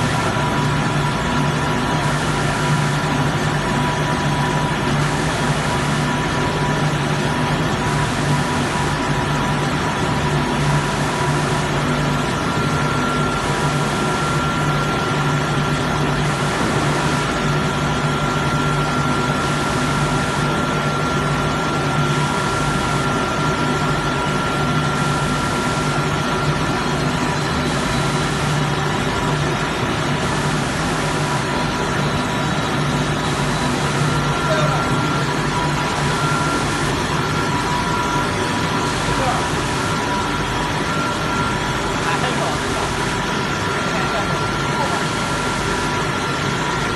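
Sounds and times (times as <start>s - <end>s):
glass washing machine running: 0.0s - 46.9s.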